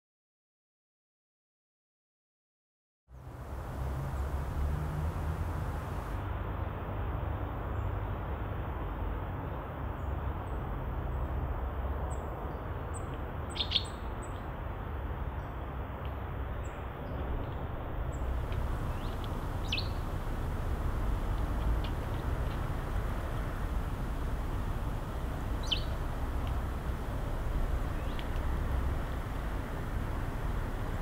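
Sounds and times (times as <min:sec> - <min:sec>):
high bird chirps: 0:13.6 - 0:14.0, 0:18.8 - 0:20.1, 0:25.6 - 0:26.0
low background rumble: 0:16.8 - 0:31.0.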